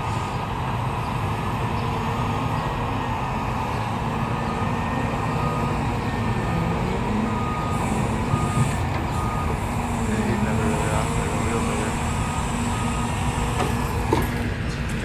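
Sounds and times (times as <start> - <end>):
heavy diesel machinery running: 0.0 - 15.0
reversing alarm beeping: 4.2 - 14.4.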